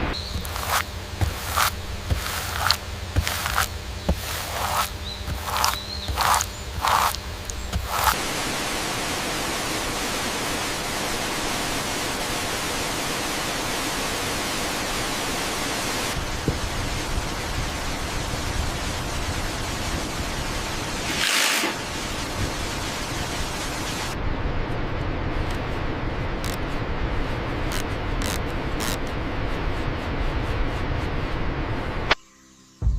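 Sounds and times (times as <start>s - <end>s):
waterfall rushing: 0.0s - 24.2s.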